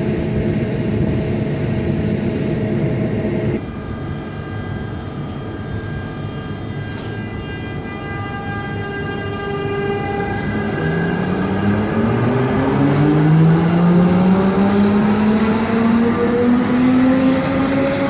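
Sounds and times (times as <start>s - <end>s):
train rumble: 0.0s - 16.9s
electric train whine: 0.0s - 18.0s
high squeal: 4.1s - 11.8s.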